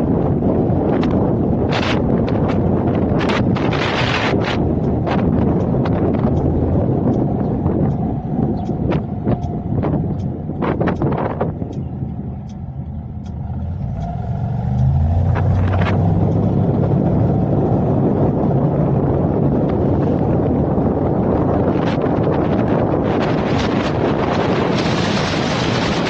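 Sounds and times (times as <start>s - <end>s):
car road and engine rumble: 0.0s - 26.0s
wind buffeting microphone: 0.0s - 26.0s
sharp ticks: 1.0s - 18.1s.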